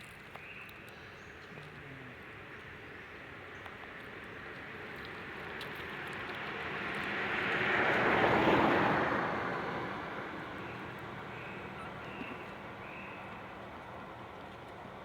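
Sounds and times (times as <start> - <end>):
vehicle passing by: 5.2 - 13.4.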